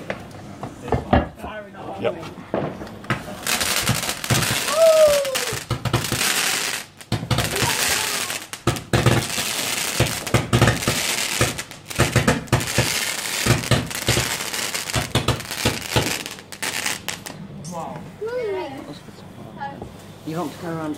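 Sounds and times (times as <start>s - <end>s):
firework crackles and pops: 2.5s - 17.4s
firework hissing: 3.2s - 17.4s.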